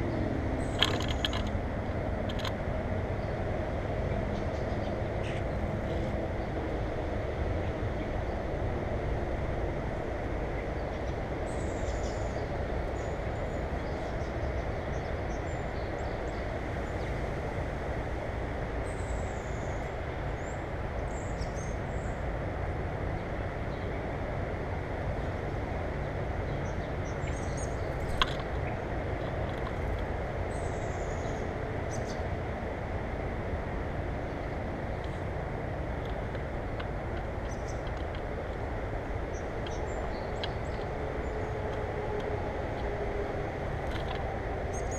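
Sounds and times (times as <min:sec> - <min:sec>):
small birds chirping: 0:00.0 - 0:03.4, 0:04.0 - 0:06.6, 0:10.5 - 0:17.2, 0:18.8 - 0:22.2, 0:25.2 - 0:32.4, 0:34.0 - 0:44.9
low rumbling noise: 0:00.0 - 0:21.3.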